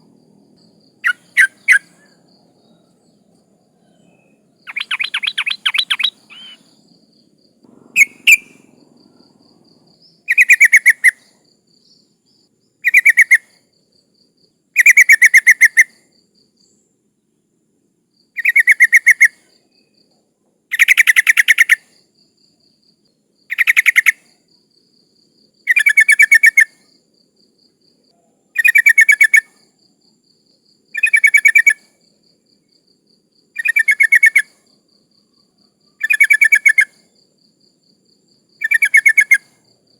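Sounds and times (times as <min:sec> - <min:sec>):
bulbul bubbly chattering call: 0:04.7 - 0:06.6.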